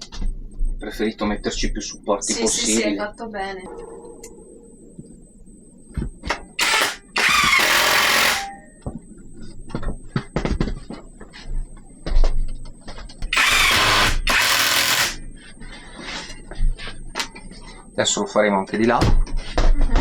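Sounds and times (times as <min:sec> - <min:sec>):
drill driving screws: 0:06.6 - 0:08.5, 0:13.3 - 0:15.2.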